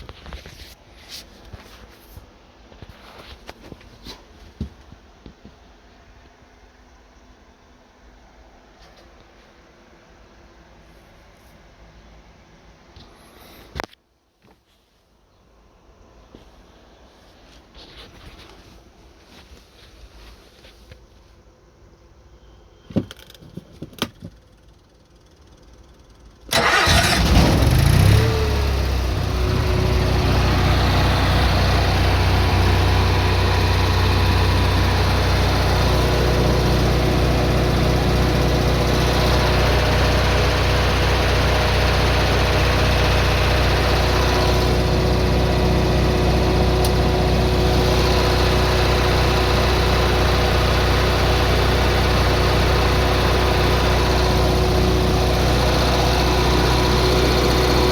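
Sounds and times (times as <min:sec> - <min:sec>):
generator engine starting and running: 0:24.6 - 0:57.9.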